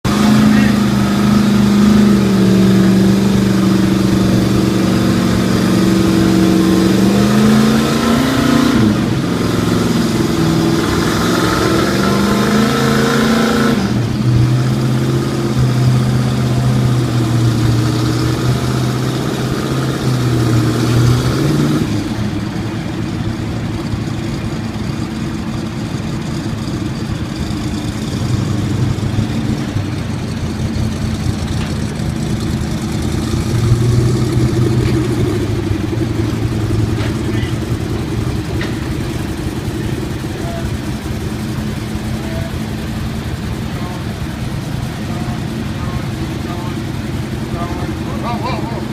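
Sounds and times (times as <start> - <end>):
car engine revving: 0.0 - 48.9.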